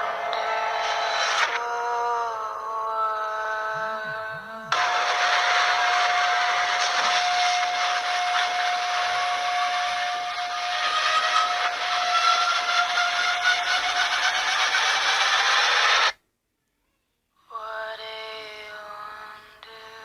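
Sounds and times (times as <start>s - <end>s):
loud rushing hiss: 4.8s - 16.1s.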